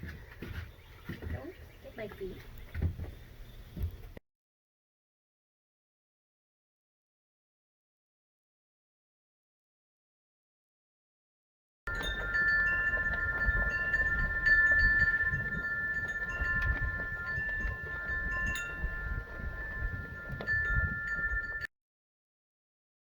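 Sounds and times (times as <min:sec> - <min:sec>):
wind chimes ringing: 0:11.9 - 0:21.7
wind rumbling on microphone: 0:11.9 - 0:21.7.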